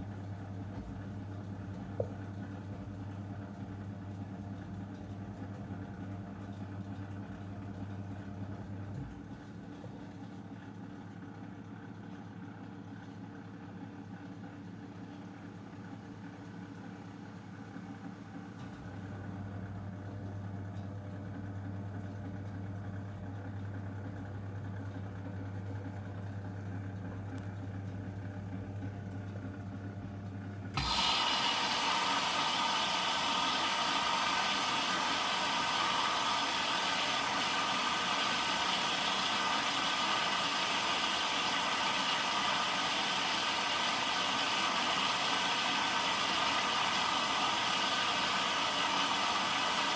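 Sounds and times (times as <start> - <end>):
washing machine hum: 0.0 - 49.9
washing machine rushing noise: 24.1 - 49.9.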